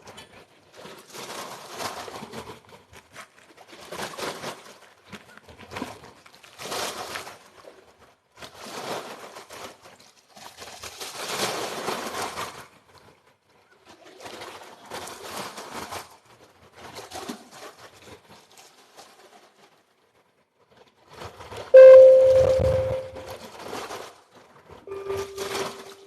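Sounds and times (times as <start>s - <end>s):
loud steady pitched tone: 21.8s - 23.4s, 24.9s - 26.0s.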